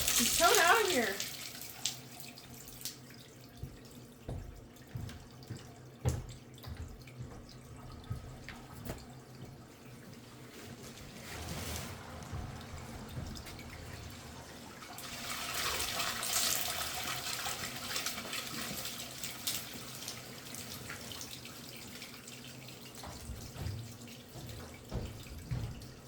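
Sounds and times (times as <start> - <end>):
water rushing through pipe: 0.0 - 3.0, 9.8 - 23.0.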